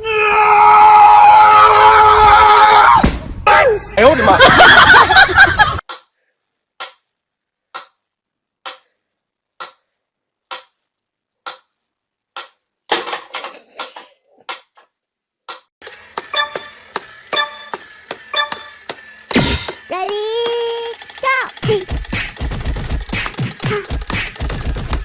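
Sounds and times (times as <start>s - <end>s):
steady clock-like ticking: 9.6s - 9.8s, 10.4s - 10.8s, 15.9s - 25.0s
fast clicks with faint ringing: 15.8s - 25.0s.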